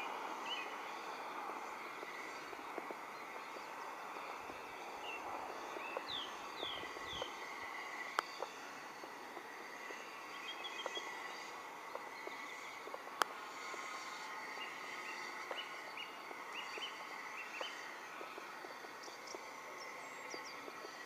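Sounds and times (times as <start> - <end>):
bird chirping: 0.0 - 8.6, 9.8 - 12.8, 13.7 - 18.0
steady background hiss: 0.0 - 21.0.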